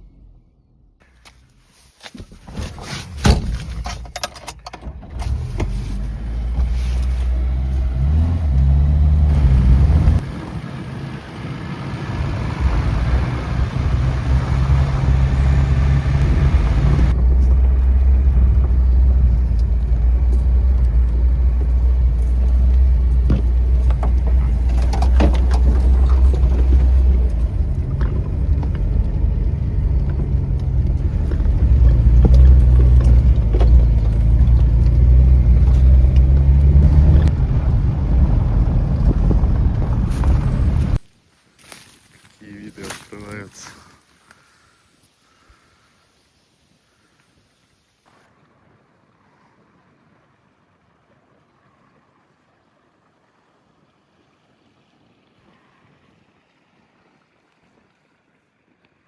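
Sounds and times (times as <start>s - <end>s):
knocks and rattles: 2.2s - 5.8s, 18.5s - 37.1s
car engine running: 5.2s - 41.0s.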